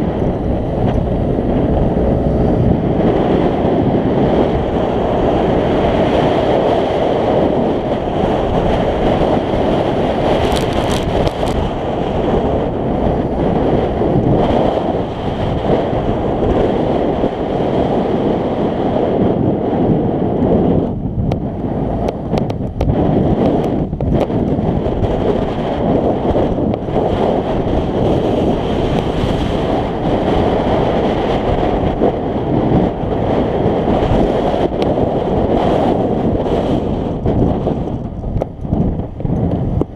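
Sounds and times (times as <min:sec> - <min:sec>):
scooter engine: 0:00.0 - 0:17.5
road noise: 0:00.0 - 0:39.9
wind buffeting microphone: 0:00.0 - 0:39.9.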